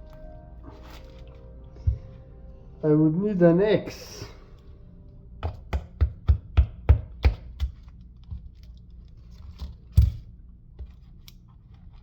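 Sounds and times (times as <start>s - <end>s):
coconut knocking against something: 5.4s - 7.8s.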